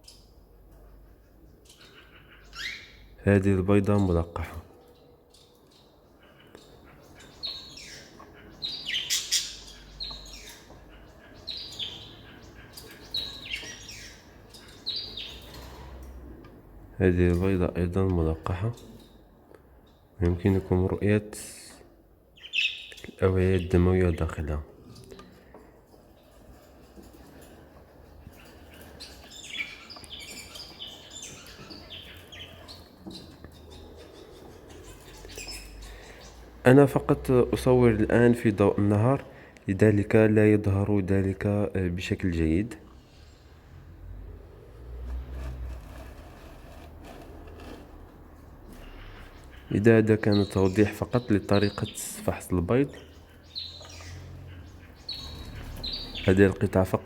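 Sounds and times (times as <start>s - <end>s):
budgerigars chirping: 1.7s - 3.2s, 6.2s - 15.6s, 22.4s - 23.8s, 28.3s - 36.5s, 48.7s - 57.0s.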